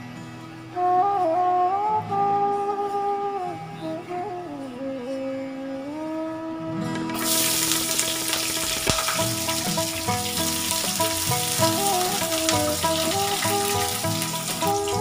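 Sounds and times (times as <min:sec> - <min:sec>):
background music with melody: 0:00.0 - 0:15.0
onions sizzling in hot oil: 0:07.2 - 0:15.0.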